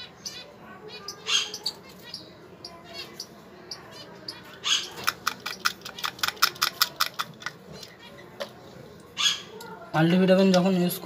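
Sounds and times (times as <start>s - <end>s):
caged birds chirping: 0.0s - 11.0s.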